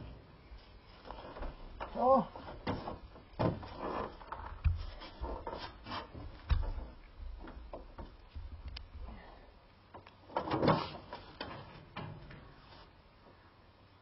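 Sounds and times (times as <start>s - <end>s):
knocks and handling clatter: 1.0s - 9.1s, 9.9s - 12.6s.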